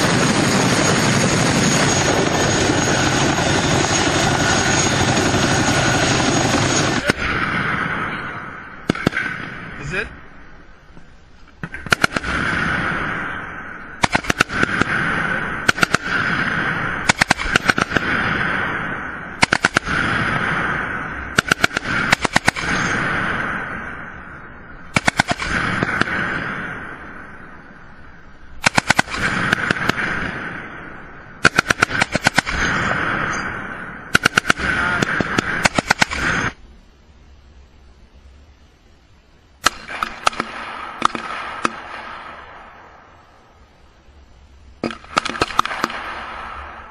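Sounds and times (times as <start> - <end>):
automatic gunfire bursts: 11.8 - 13.0, 14.0 - 18.3, 19.4 - 20.4, 21.3 - 23.0, 24.9 - 26.4, 28.6 - 30.3, 31.4 - 33.2, 34.1 - 36.6, 44.8 - 46.6.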